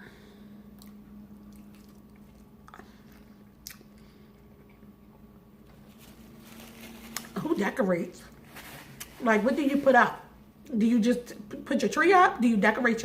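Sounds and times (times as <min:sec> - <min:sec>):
low hum: 0:00.0 - 0:11.7
person chewing food: 0:00.7 - 0:06.0
small mouth clicks: 0:00.8 - 0:04.0.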